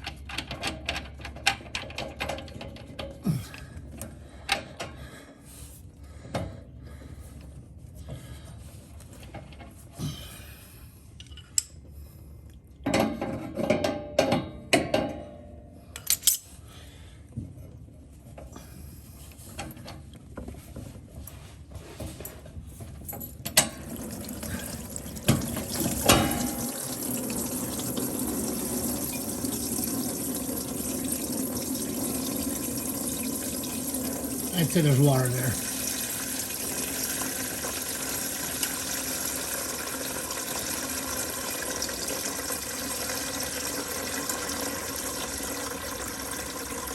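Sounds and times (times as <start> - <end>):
fluid pouring into drain pan: 23.8 - 46.9.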